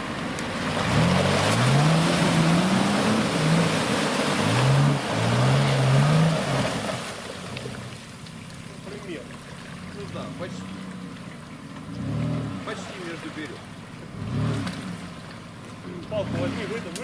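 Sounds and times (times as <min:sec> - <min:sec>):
tyres churning mud and water: 0:00.0 - 0:17.0
suv engine revving hard: 0:00.6 - 0:07.2, 0:11.8 - 0:13.3, 0:14.0 - 0:15.2, 0:16.1 - 0:17.0.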